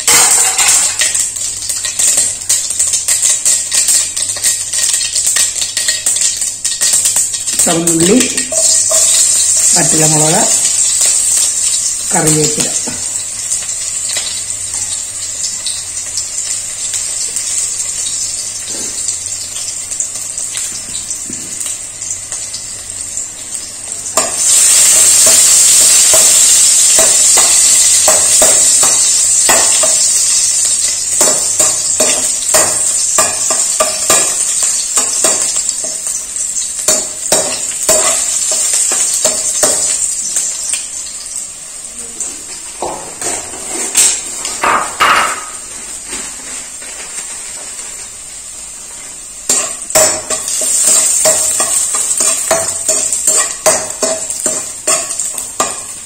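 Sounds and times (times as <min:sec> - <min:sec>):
food sizzling in oil: 0:00.0 - 0:56.0
metal spoon knocking on pan: 0:26.1 - 0:30.1, 0:31.2 - 0:34.4, 0:44.6 - 0:45.6, 0:49.5 - 0:55.8.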